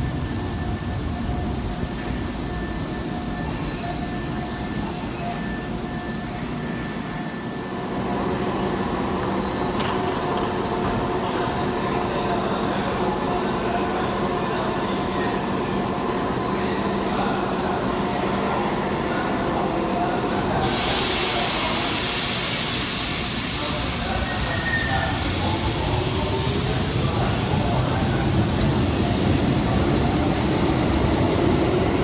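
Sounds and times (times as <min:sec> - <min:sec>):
electric train slowing to a stop: 0:00.0 - 0:32.0
compressed air hiss: 0:20.6 - 0:23.8.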